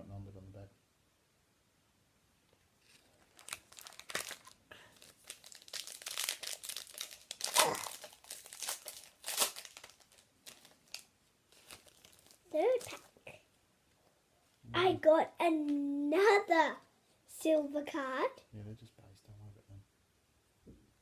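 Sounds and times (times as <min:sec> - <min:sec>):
plastic wrapper crinkling and tearing: 0:02.8 - 0:13.2.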